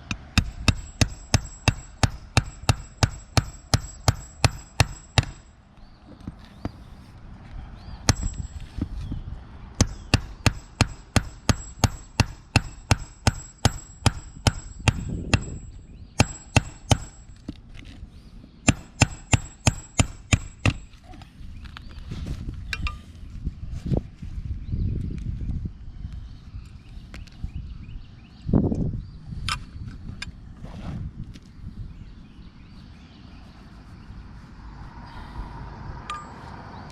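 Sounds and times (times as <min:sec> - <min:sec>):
hammer blows on roof: 0:00.0 - 0:05.5, 0:09.8 - 0:17.4, 0:18.6 - 0:20.9.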